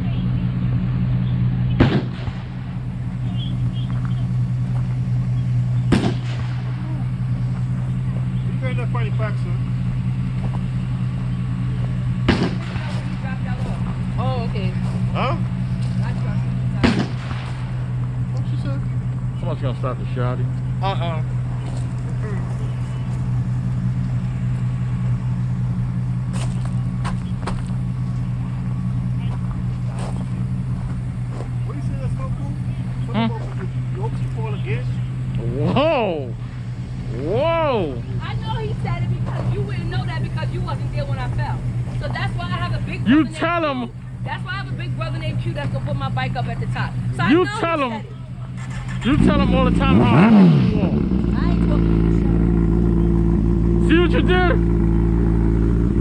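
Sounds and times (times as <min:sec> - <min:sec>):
vehicle engine humming: 0:00.0 - 0:56.0
sharp cracks: 0:01.8 - 0:02.9, 0:05.8 - 0:07.8, 0:12.2 - 0:13.2, 0:16.8 - 0:18.2.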